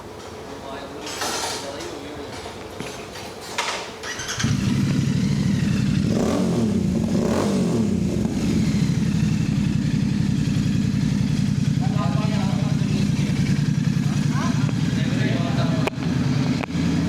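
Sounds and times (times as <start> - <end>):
motorcycle engine starting and idling: 4.0 - 17.0
engine revving: 4.2 - 17.0.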